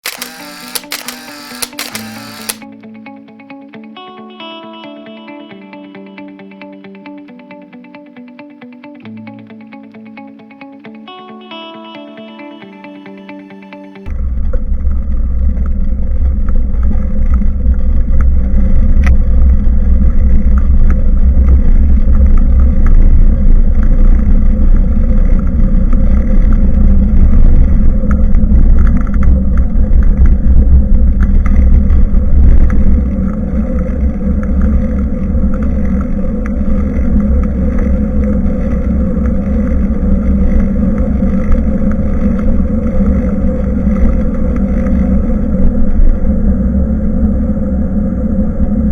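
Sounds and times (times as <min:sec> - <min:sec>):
wind rumbling on microphone: 0:14.1 - 0:48.9
road and tyre noise: 0:14.9 - 0:48.9.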